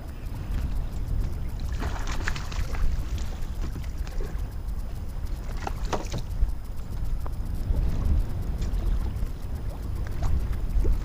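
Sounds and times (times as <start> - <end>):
water lapping around kayak: 0.0 - 11.0
wind rumbling on microphone: 0.0 - 11.0.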